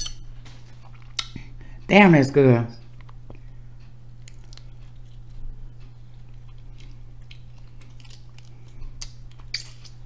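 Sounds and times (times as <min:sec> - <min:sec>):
steady low hum: 0:00.0 - 0:10.0
chewing crab meat: 0:00.7 - 0:01.5, 0:02.8 - 0:10.0
crab shell crackling: 0:04.1 - 0:10.0.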